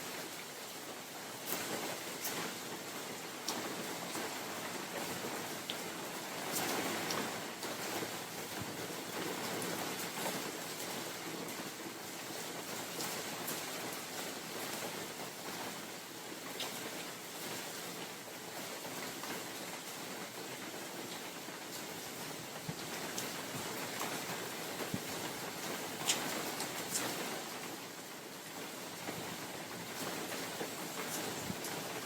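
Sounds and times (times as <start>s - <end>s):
individual raindrops: 0.0s - 32.0s
rain falling in forest: 0.0s - 32.0s.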